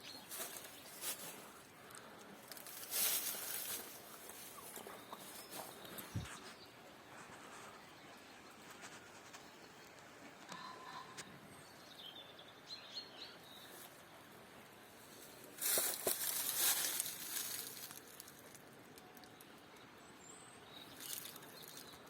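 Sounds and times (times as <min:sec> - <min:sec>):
faint bird chirps: 0:03.0 - 0:06.9.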